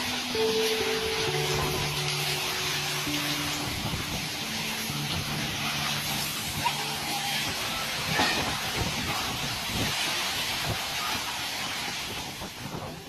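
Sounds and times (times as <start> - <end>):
strong wind blowing: 3.1 - 13.0.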